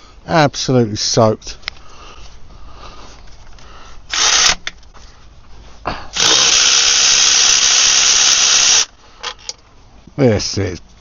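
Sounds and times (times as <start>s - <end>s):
power tool running: 4.1s - 4.6s, 6.2s - 8.9s.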